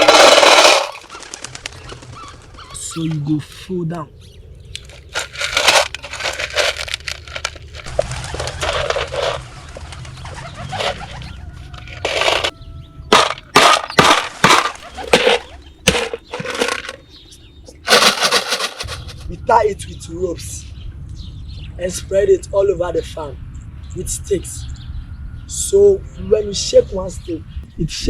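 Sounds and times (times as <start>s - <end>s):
stones rattling in a can: 0.0s - 1.8s, 4.8s - 12.5s, 13.1s - 17.1s, 17.8s - 19.2s.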